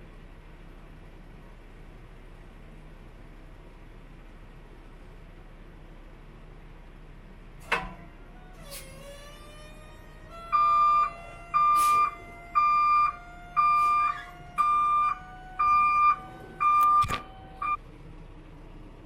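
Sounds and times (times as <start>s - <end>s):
truck reverse alarm beeping: 8.7s - 17.8s.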